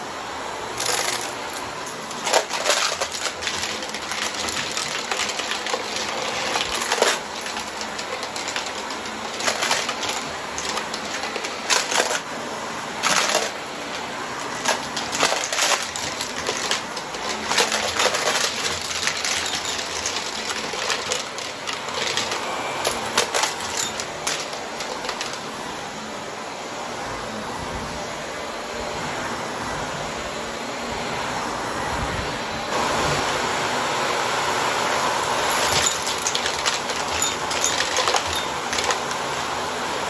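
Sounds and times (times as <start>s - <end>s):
vacuum cleaner running: 0.0s - 40.0s
coins clattering through vacuum: 0.7s - 25.6s, 35.2s - 40.0s.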